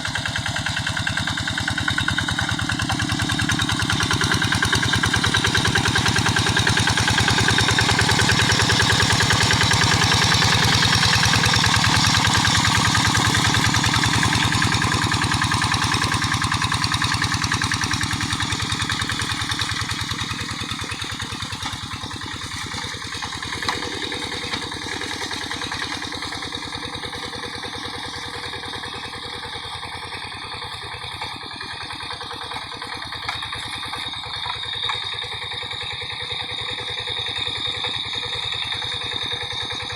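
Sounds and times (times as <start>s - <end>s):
diesel hand tractor engine running: 0.0s - 39.9s.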